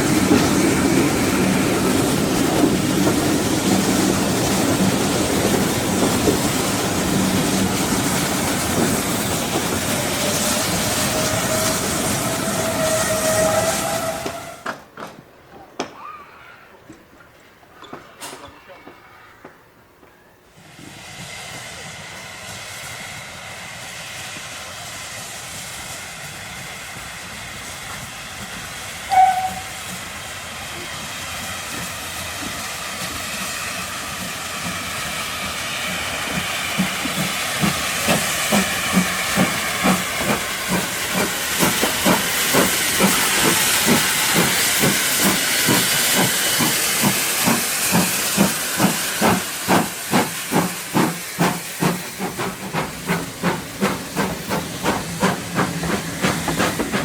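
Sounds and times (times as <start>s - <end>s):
steam hissing: 0.0s - 14.6s, 20.6s - 57.0s
steam locomotive whistle: 10.0s - 14.7s, 29.0s - 29.9s
locomotive exhaust beats: 35.8s - 57.0s.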